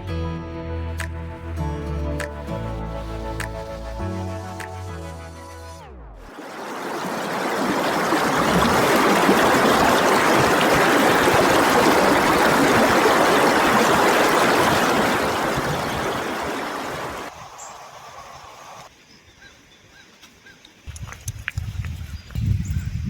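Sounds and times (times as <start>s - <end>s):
running water rushing: 6.3s - 18.9s
quiet outdoor ambience: 16.3s - 22.3s.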